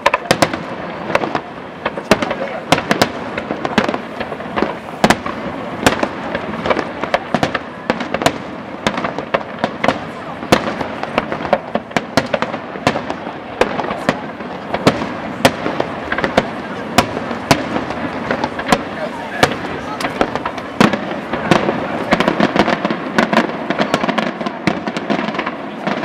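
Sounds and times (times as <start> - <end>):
fireworks crackling: 0.0 - 26.0.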